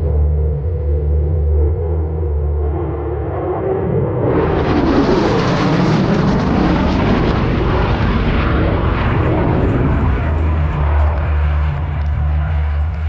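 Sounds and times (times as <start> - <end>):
jet roar on flyby: 4.2 - 12.7.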